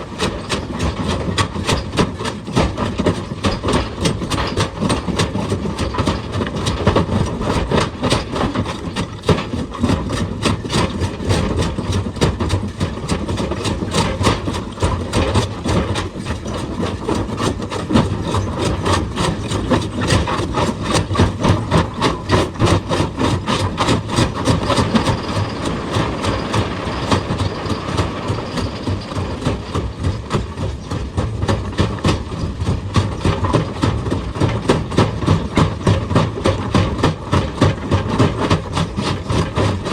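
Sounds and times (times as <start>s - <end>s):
knocks from rock being worked: 0.0s - 39.9s
excavator engine running: 12.7s - 35.2s.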